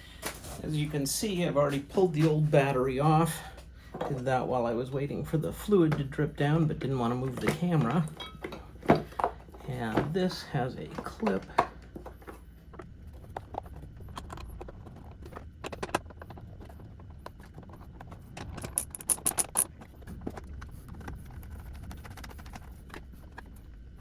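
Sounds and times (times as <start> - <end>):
plastic and metal parts clicking: 13.3 - 23.7.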